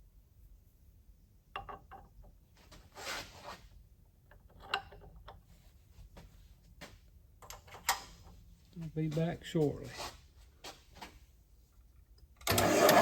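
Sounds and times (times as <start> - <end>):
short rustle: 8.8 - 11.3.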